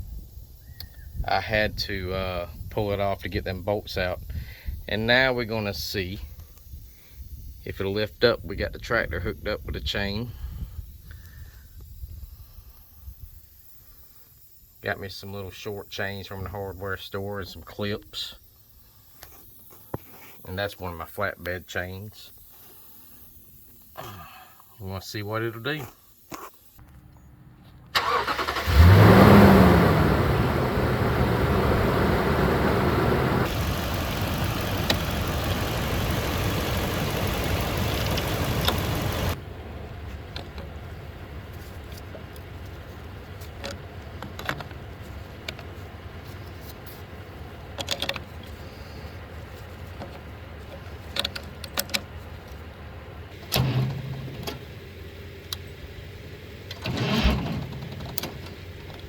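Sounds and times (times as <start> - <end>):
tractor engine starting and revving: 27.7 - 46.3, 53.3 - 55.3, 56.6 - 59.0.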